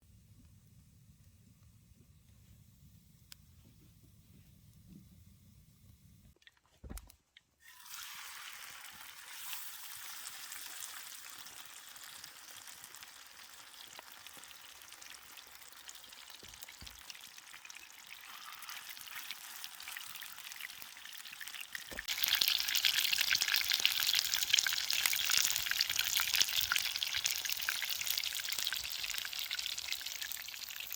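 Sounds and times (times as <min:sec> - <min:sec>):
sausages sizzling over fire: 0:07.6 - 0:30.9.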